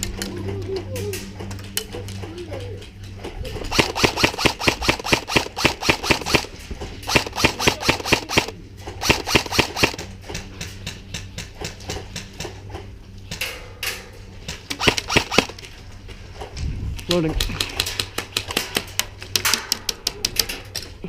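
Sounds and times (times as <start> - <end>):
airsoft guns firing: 3.7 - 10.1, 14.7 - 15.6.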